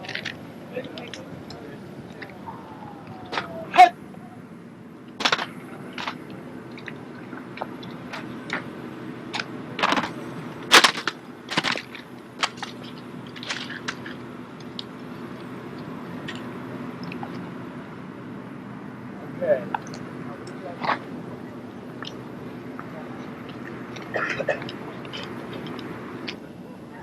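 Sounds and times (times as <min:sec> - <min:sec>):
drill rifles slapped and knocked: 0:05.2 - 0:06.2, 0:09.8 - 0:12.8.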